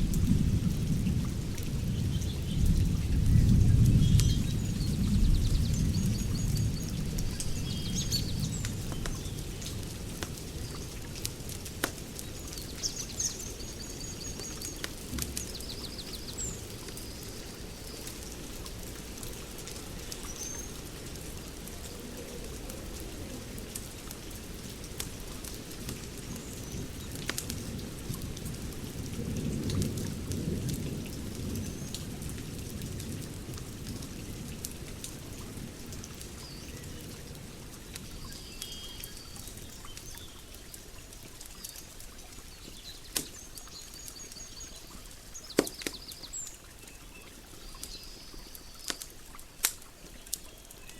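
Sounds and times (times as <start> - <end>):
wood fire crackling and popping: 8.3 - 13.4, 14.4 - 15.9, 16.6 - 30.8, 39.0 - 44.4, 45.5 - 46.2, 48.8 - 50.9.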